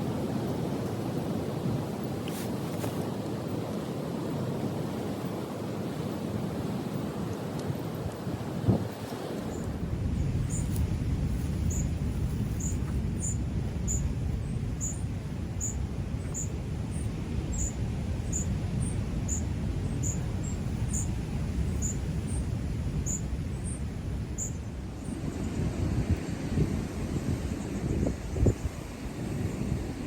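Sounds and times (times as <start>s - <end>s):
ocean surf: 0.0s - 30.0s
wind: 0.0s - 30.0s
small bird chirping: 12.5s - 14.1s, 14.8s - 15.0s, 20.0s - 22.0s, 23.0s - 23.8s, 24.4s - 24.6s.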